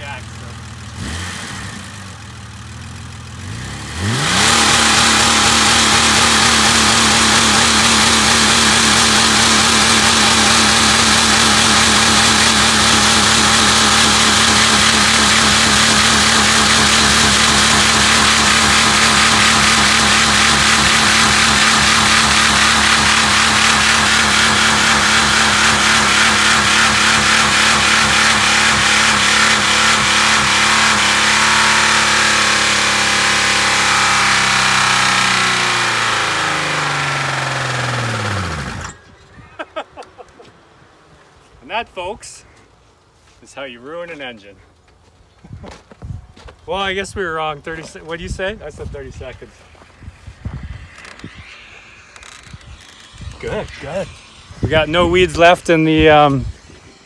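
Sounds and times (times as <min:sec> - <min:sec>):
car engine idling and revving: 0:00.0 - 0:39.2.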